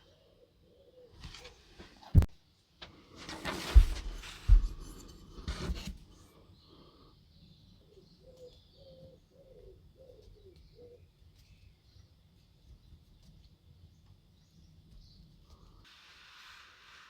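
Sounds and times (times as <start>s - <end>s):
handling knocks and clatter: 3.2s - 6.0s
pigeon cooing: 7.9s - 11.0s.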